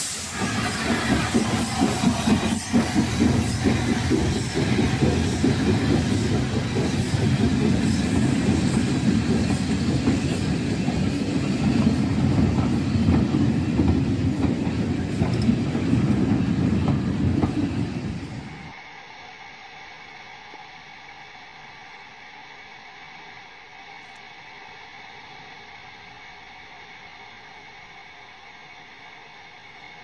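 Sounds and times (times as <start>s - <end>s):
train coaches rumbling past: 0.0s - 18.8s
wheels clicking over rail joints: 11.7s - 17.7s.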